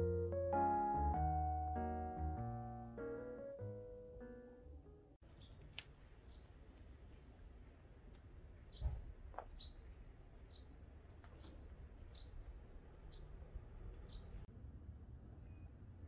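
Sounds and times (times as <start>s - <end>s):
small bird chirping: 5.2s - 6.6s, 8.7s - 10.7s, 11.3s - 14.5s.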